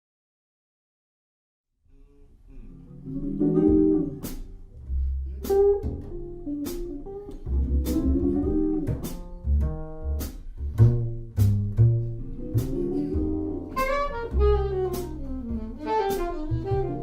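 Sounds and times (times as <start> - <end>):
jazz-blues guitar: 2.5 - 17.0
low bass line: 2.5 - 17.0.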